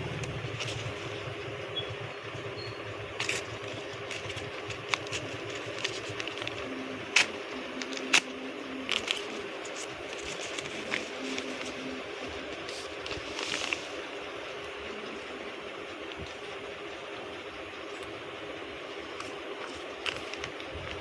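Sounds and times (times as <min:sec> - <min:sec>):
low hum: 0:00.0 - 0:21.0
bird chip calls: 0:01.6 - 0:03.0.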